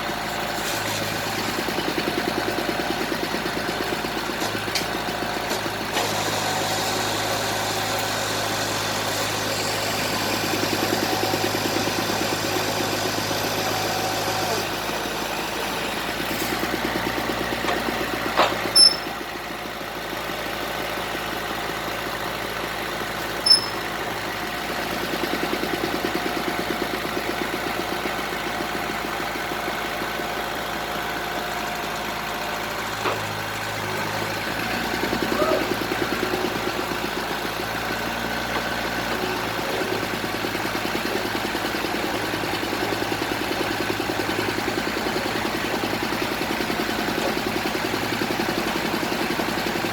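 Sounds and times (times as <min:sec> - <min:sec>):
drilling rig engine idling: 0:00.0 - 0:49.9
sharp high-pitched blips: 0:23.4 - 0:23.8.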